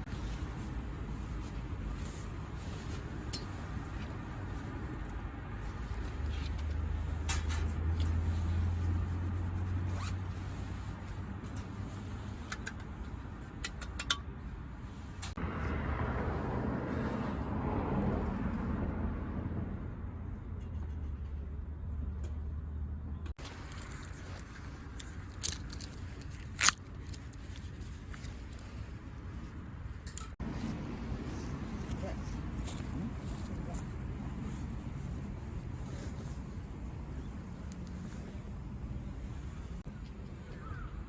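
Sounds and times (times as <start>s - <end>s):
tent zipper being drawn: 8.1s - 11.0s.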